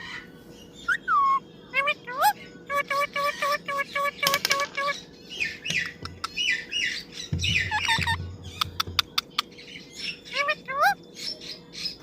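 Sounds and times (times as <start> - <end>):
parrot calling: 0.0 - 11.1
low thumps: 7.3 - 9.0.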